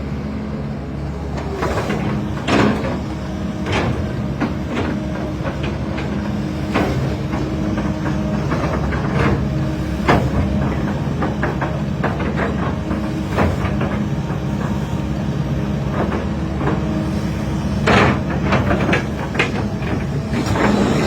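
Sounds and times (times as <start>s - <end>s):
excavator diesel engine running: 0.0s - 21.0s
metallic clanks and knocks: 17.8s - 21.0s.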